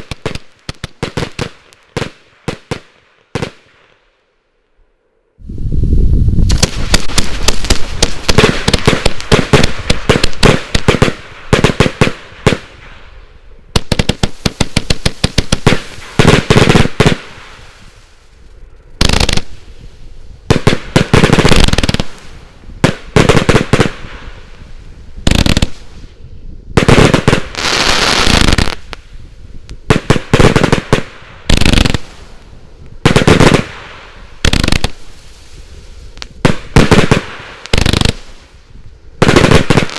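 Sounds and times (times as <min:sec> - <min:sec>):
firework battery shots firing: 0:06.5 - 0:12.8, 0:13.8 - 0:17.6, 0:39.2 - 0:39.9.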